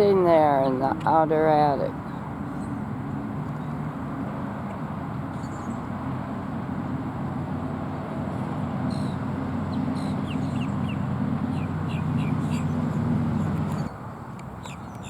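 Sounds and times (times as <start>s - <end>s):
vehicle engine idling: 4.6s - 13.9s.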